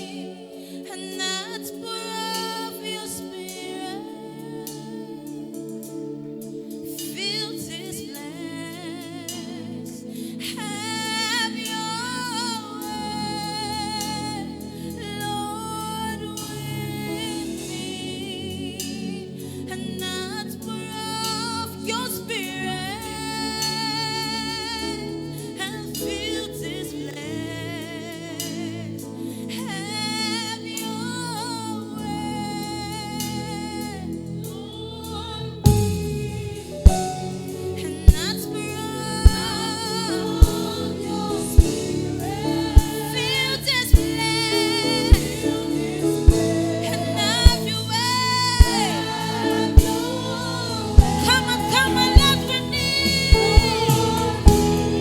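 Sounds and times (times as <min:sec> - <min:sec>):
gospel singing: 0:00.0 - 0:55.0
sustained instrumental chords: 0:35.6 - 0:55.0.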